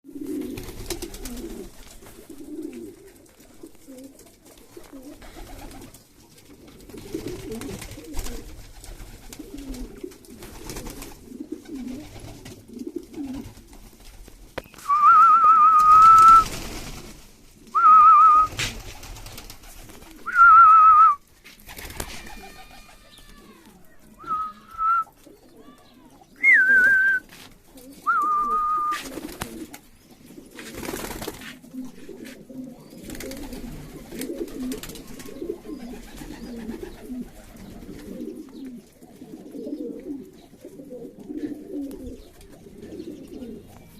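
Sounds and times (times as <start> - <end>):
pigeons cooing: 0.1 - 43.9
loud warbling whistles: 24.2 - 25.1, 26.4 - 27.2.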